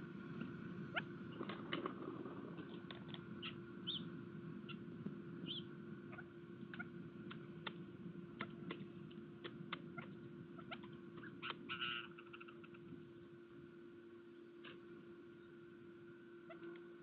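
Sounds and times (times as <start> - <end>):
low electrical hum: 0.0 - 17.0
birds chirping: 0.2 - 13.4.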